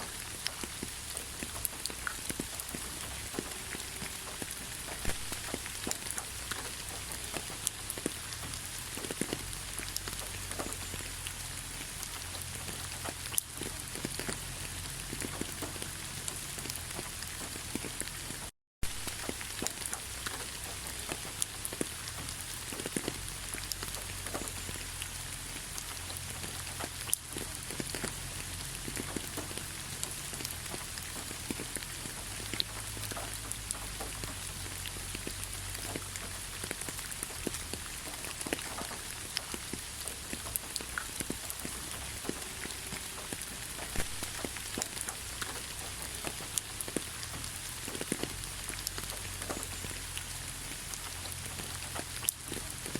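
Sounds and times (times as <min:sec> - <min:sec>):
rain drops ticking: 0:00.0 - 0:52.9.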